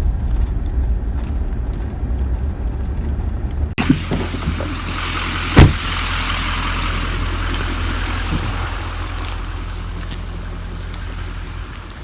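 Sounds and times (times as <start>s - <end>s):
vehicle engine running: 0.0s - 12.0s
rain hissing: 3.7s - 12.0s
loud thump: 5.5s - 6.1s.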